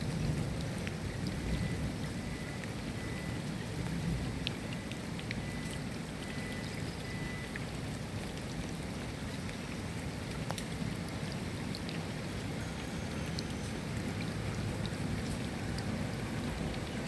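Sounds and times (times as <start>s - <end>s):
rain falling: 0.0s - 17.0s
drops ticking: 0.5s - 8.4s.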